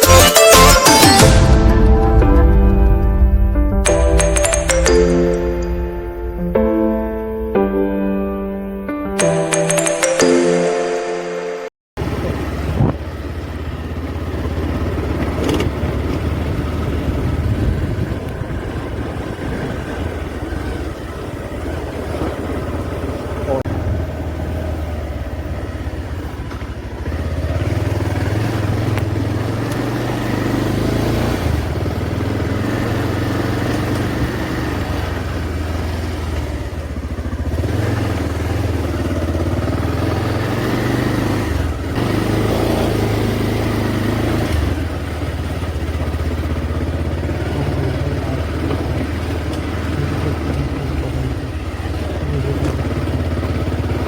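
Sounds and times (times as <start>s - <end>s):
motorcycle engine running: 12.0s - 54.0s
rush of riding noise: 12.0s - 54.0s.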